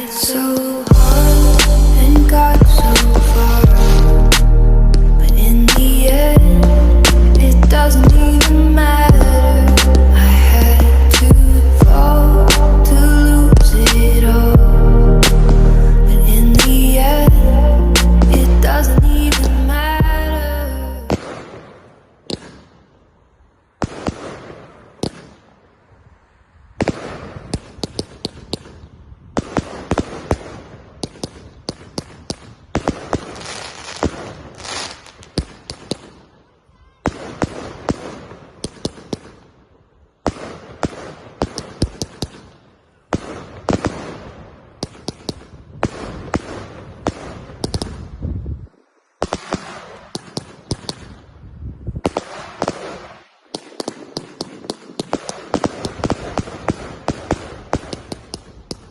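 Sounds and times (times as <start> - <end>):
fireworks cracking: 0.0 - 14.6, 15.2 - 23.1, 23.7 - 51.4, 52.0 - 58.9
music: 0.2 - 21.1.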